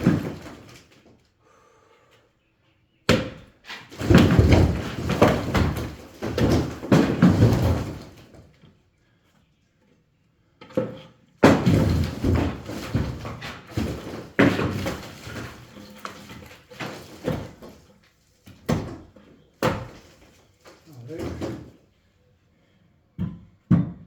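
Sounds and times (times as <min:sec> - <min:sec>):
heavy knocks on brick wall: 0:00.0 - 0:00.8, 0:03.1 - 0:08.4, 0:10.8 - 0:17.9, 0:18.5 - 0:20.4, 0:23.2 - 0:24.0
bricks and rubble clattering: 0:00.0 - 0:01.1, 0:03.7 - 0:08.5, 0:10.8 - 0:21.8.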